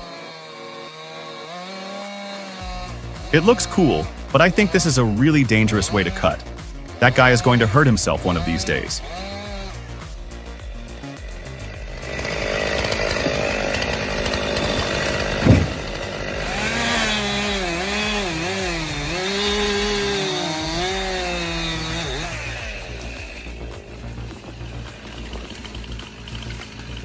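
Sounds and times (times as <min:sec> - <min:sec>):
chainsaw cutting wood: 0:00.0 - 0:27.0
sharp thump: 0:14.6 - 0:16.1.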